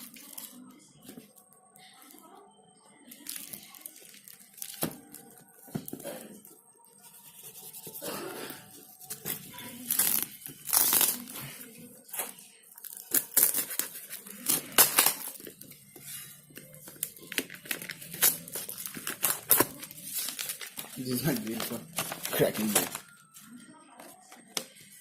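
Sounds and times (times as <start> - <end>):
packaging being torn and crinkled: 9.1 - 11.4, 12.8 - 15.7, 16.9 - 23.2.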